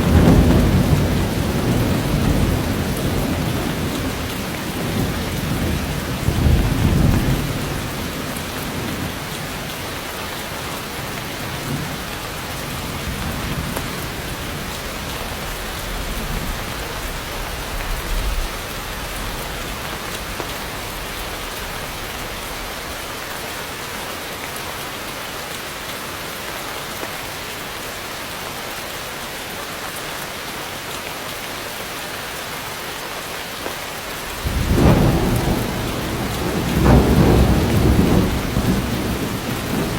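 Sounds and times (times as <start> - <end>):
thunder rumbling: 0.0 - 9.7, 34.2 - 39.9
heavy rain: 0.0 - 39.9.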